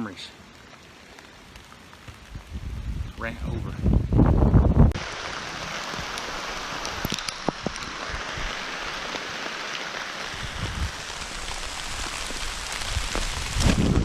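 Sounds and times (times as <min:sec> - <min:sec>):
steady rain falling: 0:00.0 - 0:14.0
sharp raindrop taps: 0:00.4 - 0:14.0.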